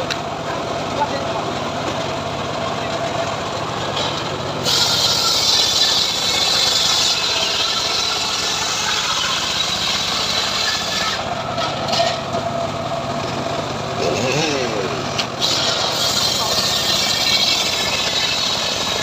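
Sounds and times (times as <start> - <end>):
sawmill engine drone: 0.0 - 19.0
blade cutting wood hiss: 4.6 - 11.3, 15.2 - 19.0.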